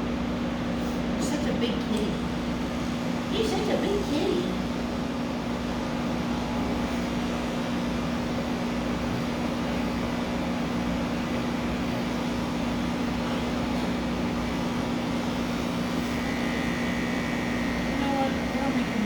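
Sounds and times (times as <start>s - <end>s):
electric pet clippers humming: 10.7s - 19.0s.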